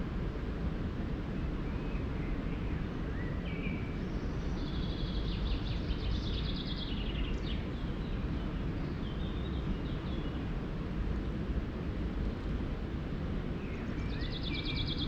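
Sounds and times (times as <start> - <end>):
low outdoor rumble: 0.0 - 15.0
songbird trilling: 14.0 - 15.0.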